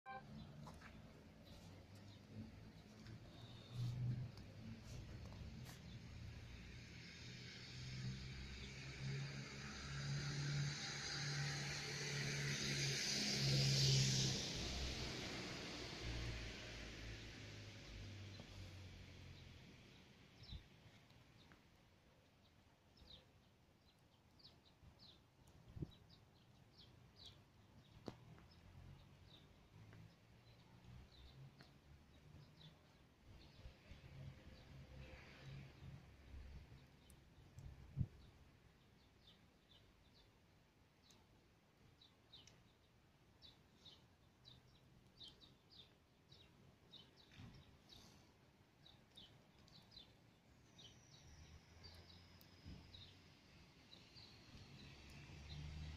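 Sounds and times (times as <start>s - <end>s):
songbird chirps: 0.1s - 55.9s
faint small bird chirping: 42.0s - 55.9s.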